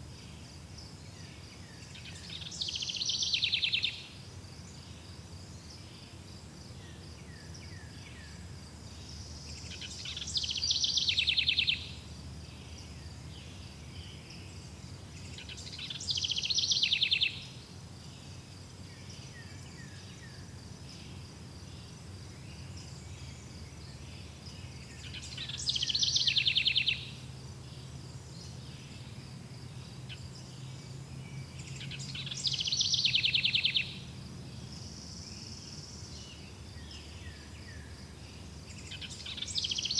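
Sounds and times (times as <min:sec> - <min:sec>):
bird trilled song: 0:24.9 - 0:27.2, 0:31.5 - 0:34.0, 0:38.7 - 0:39.9.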